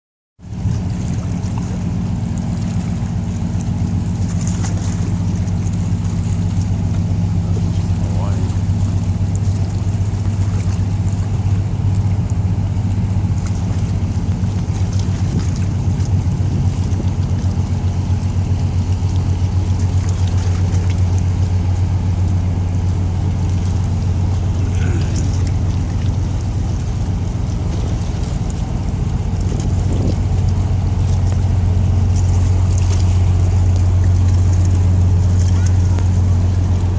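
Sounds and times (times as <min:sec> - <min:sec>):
boat engine droning: 0:00.4 - 0:36.9.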